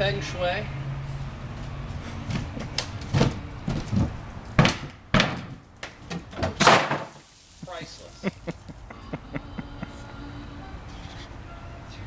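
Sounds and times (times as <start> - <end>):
sharp knocks and clunks: 2.2 - 7.2.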